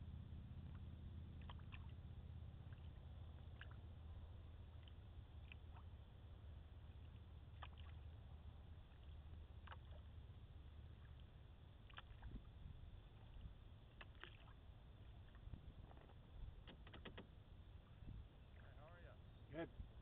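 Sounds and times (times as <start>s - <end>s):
low steady rumble: 0.0s - 20.0s
paddle splashing water: 2.7s - 3.8s, 6.9s - 8.1s, 8.8s - 10.1s, 10.9s - 18.6s.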